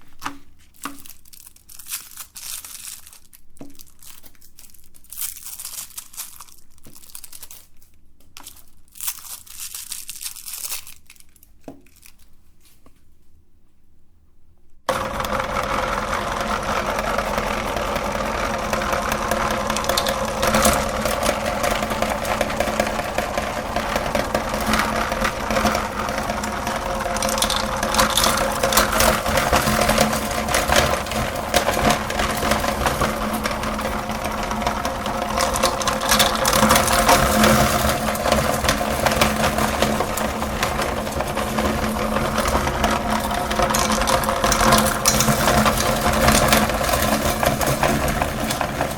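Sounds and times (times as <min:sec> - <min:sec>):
candy crunching in grinder: 0:00.0 - 0:12.4, 0:14.9 - 0:48.9
electric meat grinder running: 0:14.9 - 0:48.9.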